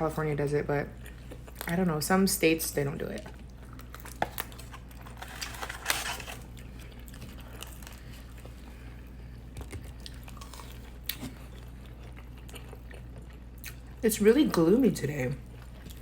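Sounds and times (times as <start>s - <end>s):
person chewing pizza: 0.9s - 1.8s, 3.2s - 14.0s, 15.4s - 16.0s.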